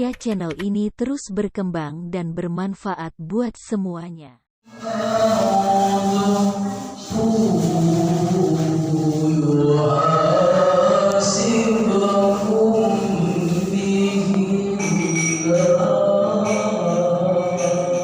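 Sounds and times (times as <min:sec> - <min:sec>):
man reciting melodically over loudspeaker: 0:04.7 - 0:18.0.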